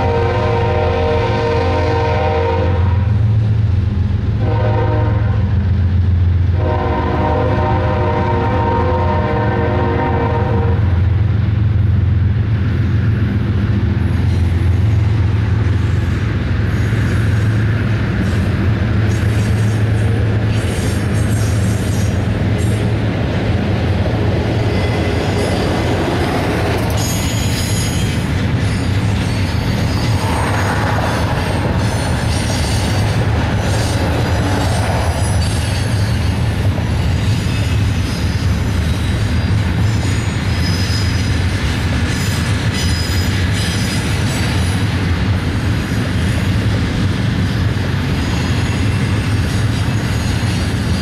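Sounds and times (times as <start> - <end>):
freight train rolling past: 0.0 - 51.0
wheel squeal: 26.9 - 41.5, 42.1 - 44.9.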